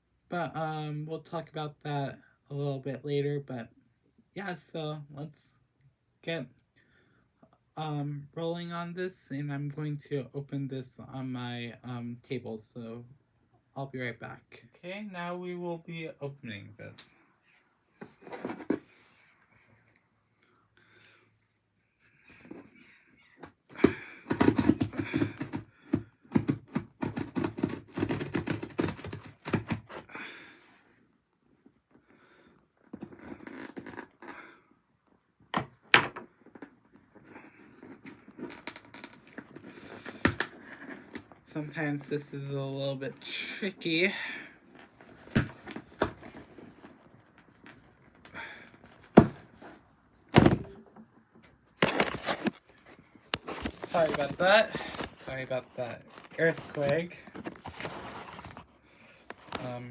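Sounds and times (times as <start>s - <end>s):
hands scratching a package: 23.4s - 30.8s, 37.2s - 41.4s, 44.7s - 50.1s.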